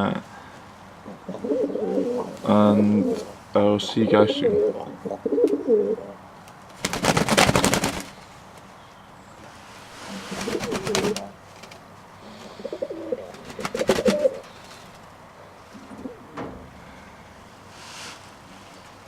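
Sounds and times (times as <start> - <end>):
pigeons cooing: 1.0 - 6.2, 10.1 - 11.4, 12.2 - 16.6.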